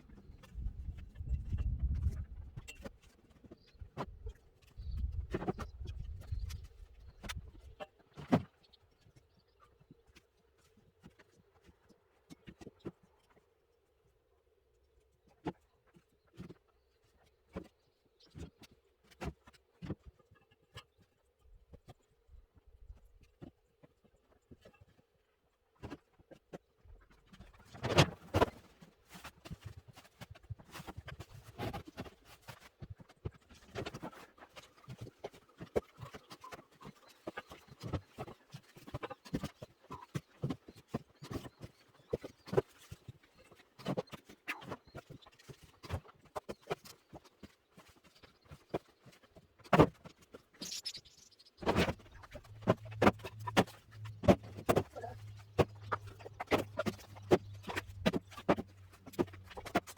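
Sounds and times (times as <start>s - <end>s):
firewood logs knocking and clattering: 51.6s - 59.9s.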